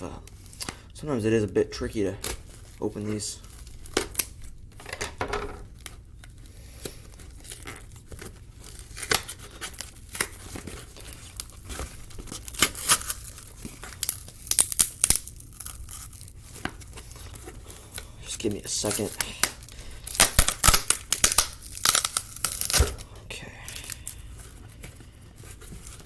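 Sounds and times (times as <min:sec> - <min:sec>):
packaging being torn open: 0:03.4 - 0:04.6, 0:05.8 - 0:23.1, 0:23.7 - 0:24.6.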